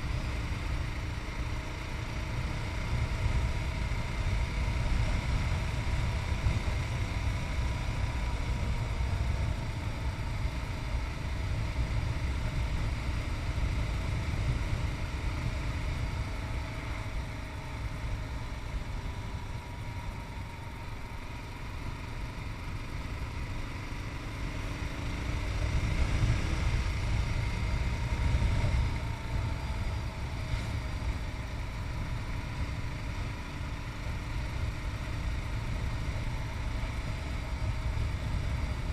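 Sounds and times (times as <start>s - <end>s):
motorcycle engine running: 0.0s - 38.9s
wind rumble on microphone: 25.4s - 38.9s.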